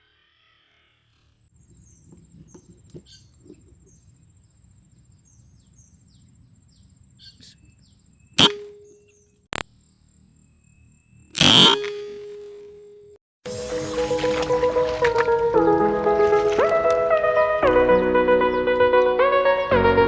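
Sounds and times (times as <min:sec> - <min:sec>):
small bird chirps: 0:00.0 - 0:11.7
air rifle shot: 0:08.4 - 0:08.8
high insect whine: 0:09.7 - 0:11.8, 0:13.5 - 0:15.4.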